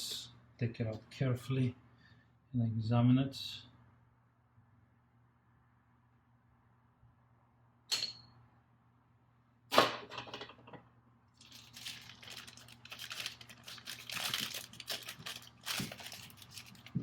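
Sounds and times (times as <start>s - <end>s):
plastic packaging crinkling: 11.3s - 17.0s.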